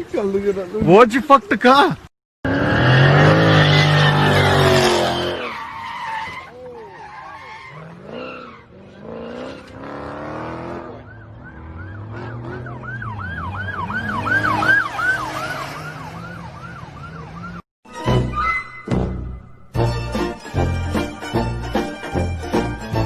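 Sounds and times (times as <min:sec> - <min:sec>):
emergency siren yelping: 0:10.8 - 0:17.6.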